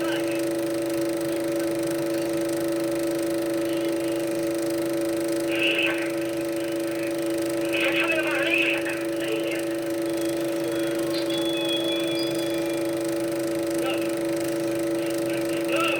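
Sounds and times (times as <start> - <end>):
projector hum: 0.0 - 15.9
bird chirping: 11.0 - 13.0.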